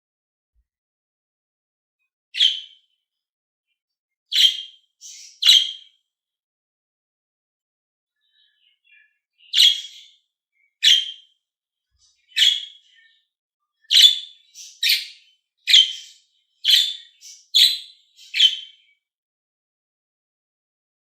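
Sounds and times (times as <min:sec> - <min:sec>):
budgerigar chirping: 0:02.4 - 0:02.8, 0:04.3 - 0:05.9, 0:09.4 - 0:10.1, 0:10.8 - 0:11.3, 0:12.3 - 0:12.9, 0:13.9 - 0:18.8.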